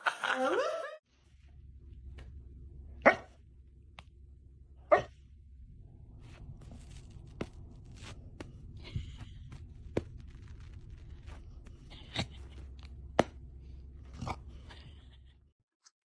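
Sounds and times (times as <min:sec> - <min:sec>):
low steady hum: 0:00.1 - 0:15.5
dog barking: 0:03.0 - 0:03.4, 0:04.9 - 0:05.2.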